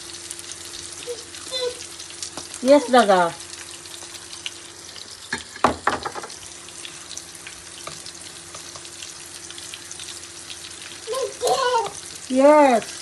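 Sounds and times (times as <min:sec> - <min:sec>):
spices sizzling in a pan: 0:00.0 - 0:13.0
spoon knocking against pan: 0:05.3 - 0:06.4.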